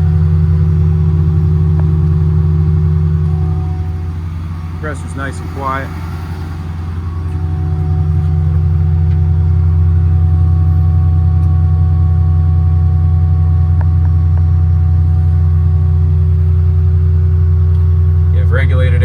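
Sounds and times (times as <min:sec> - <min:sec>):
air compressor low hum: 0:00.0 - 0:19.0.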